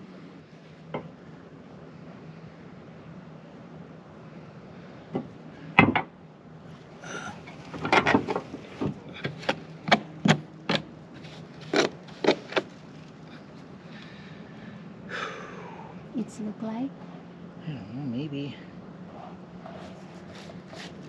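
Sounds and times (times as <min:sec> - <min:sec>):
sharp knocks and clacks: 0:07.7 - 0:12.7.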